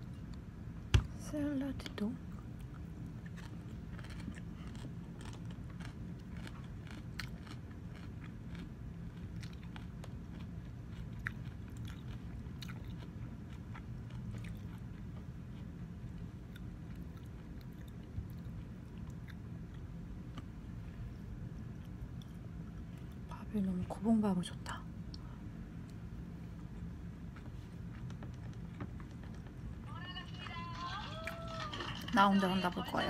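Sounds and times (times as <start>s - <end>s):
crunchy salad chewing: 2.3s - 20.5s.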